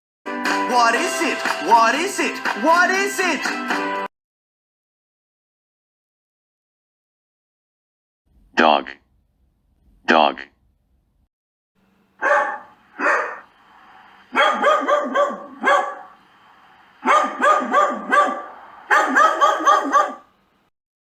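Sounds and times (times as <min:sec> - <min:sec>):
dog barking: 0:12.2 - 0:13.5, 0:14.3 - 0:16.2, 0:17.0 - 0:20.3.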